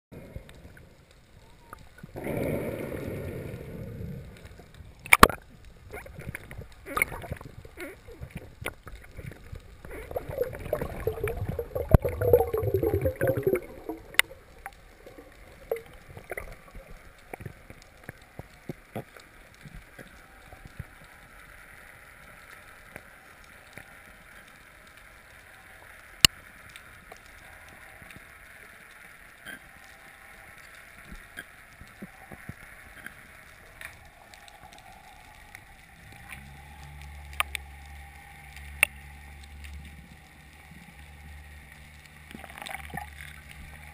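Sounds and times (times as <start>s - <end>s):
low steady hum: 0.2s - 18.6s, 33.5s - 43.9s
steady underwater hiss: 0.2s - 43.9s
gurgling rush of water bubbles: 2.1s - 17.7s.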